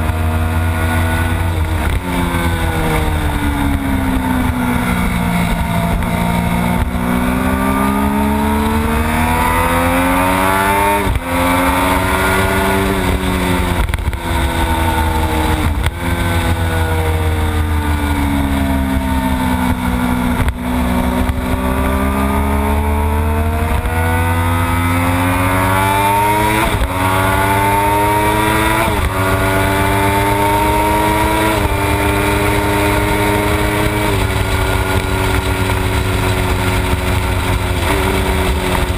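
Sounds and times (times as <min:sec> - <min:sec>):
motorcycle engine at high revs: 0:00.0 - 0:38.9.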